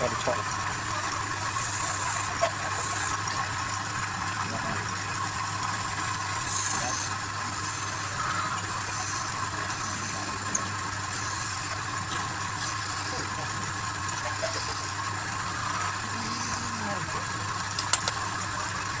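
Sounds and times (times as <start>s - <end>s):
wood lathe motor hum: 0.0s - 19.0s
small click: 17.8s - 18.2s.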